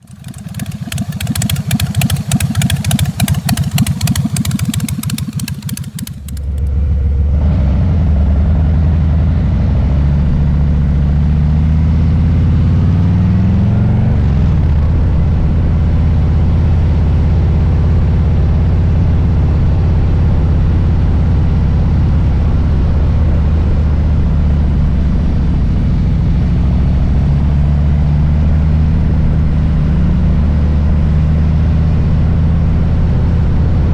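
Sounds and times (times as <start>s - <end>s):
motorcycle engine rumbling: 0.0s - 9.0s.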